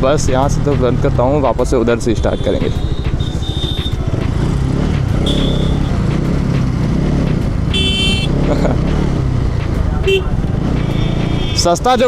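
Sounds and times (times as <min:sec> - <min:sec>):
road noise: 0:00.0 - 0:12.0
vehicle horn honking: 0:02.2 - 0:04.0, 0:05.2 - 0:06.0, 0:07.7 - 0:08.4, 0:10.0 - 0:11.7
motorcycle engine running: 0:02.2 - 0:12.0
short high beeps: 0:05.3 - 0:06.0.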